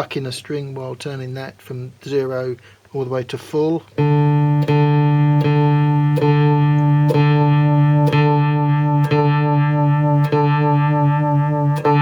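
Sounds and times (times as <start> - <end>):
electric guitar with vibrato: 4.0 - 12.0.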